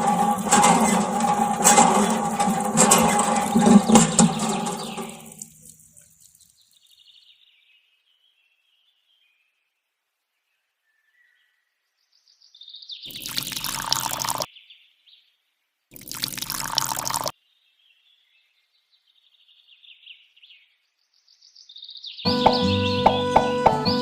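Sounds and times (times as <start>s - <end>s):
water pouring: 0.0s - 6.6s, 13.1s - 14.5s, 15.9s - 17.3s.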